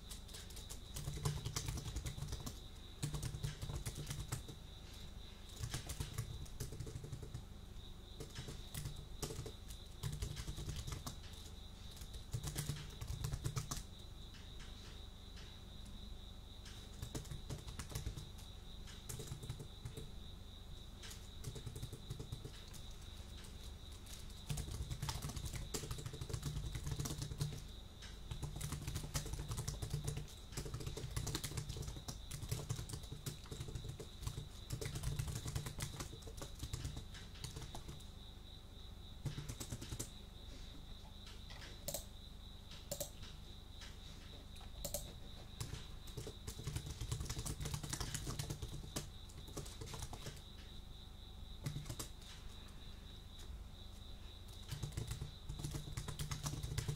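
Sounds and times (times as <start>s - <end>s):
keyboard keystroke clicks: 41.6s - 42.1s, 42.8s - 43.4s, 44.8s - 50.4s.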